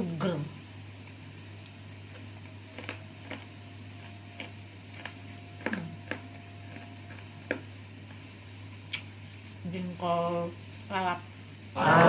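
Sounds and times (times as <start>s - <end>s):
steady low hum: 0.0s - 12.0s
chewing raw vegetables: 1.6s - 8.2s.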